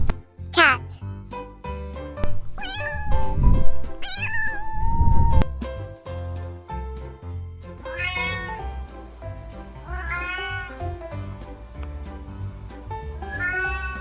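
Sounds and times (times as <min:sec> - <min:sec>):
background music with steady beat: 0:00.0 - 0:14.0
cat meowing: 0:02.6 - 0:03.4, 0:04.0 - 0:05.4, 0:07.9 - 0:08.6, 0:09.9 - 0:10.8, 0:13.3 - 0:14.0.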